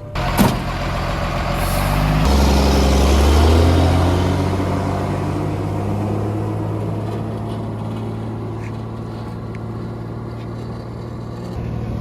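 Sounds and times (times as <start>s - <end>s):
heavy diesel engine revving: 0.0s - 12.0s.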